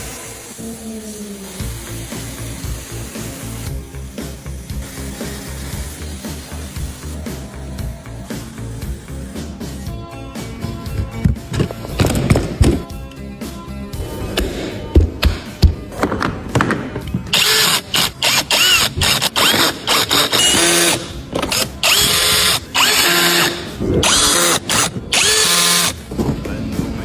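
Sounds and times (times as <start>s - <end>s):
power drill whining: 17.3s - 26.1s.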